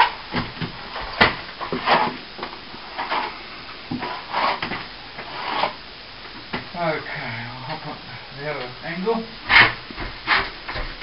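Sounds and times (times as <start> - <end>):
plastering tools scraping: 0.0 - 2.2, 2.9 - 5.8, 9.5 - 10.9.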